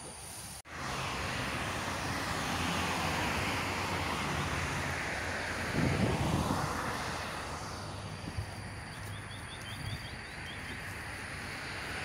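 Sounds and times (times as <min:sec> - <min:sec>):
road and wind noise: 0:00.0 - 0:12.0
bird chirping: 0:08.8 - 0:10.9.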